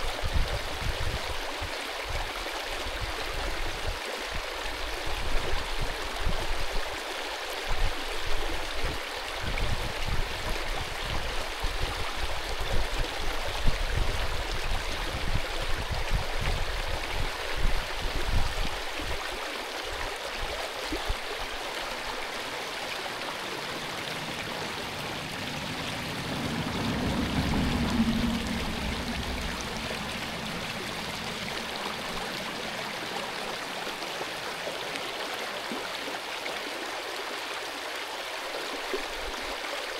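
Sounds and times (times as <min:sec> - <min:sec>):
stream rushing over rocks: 0:00.0 - 0:39.9
low buffeting: 0:22.4 - 0:34.7.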